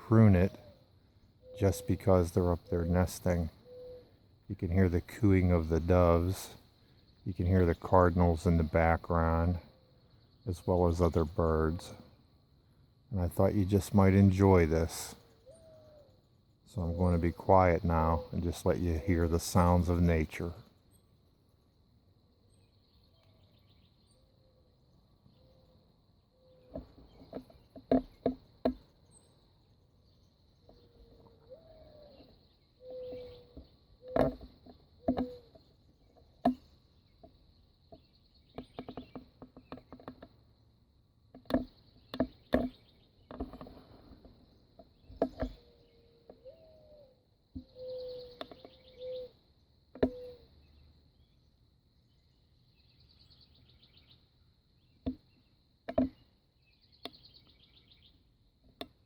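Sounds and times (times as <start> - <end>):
birds chirping: 0.0 - 59.0
insect trill: 0.0 - 59.0
doves cooing: 1.4 - 6.6, 13.3 - 20.5, 30.6 - 36.6, 45.1 - 50.5.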